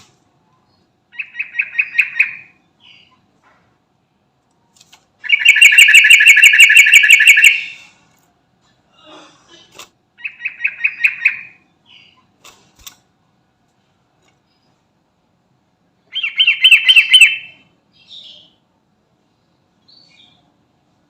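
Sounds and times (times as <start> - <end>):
bird chattering song: 0.7 - 3.3, 5.2 - 7.9, 10.2 - 12.3, 16.1 - 18.6
soft bird calls: 16.1 - 18.6.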